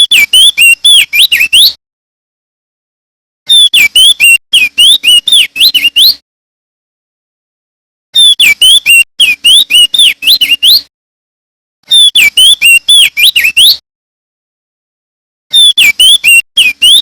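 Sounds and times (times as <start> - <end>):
bird whistling song: 0.0 - 1.8, 3.5 - 6.2, 8.2 - 10.9, 11.9 - 13.8, 15.5 - 17.0.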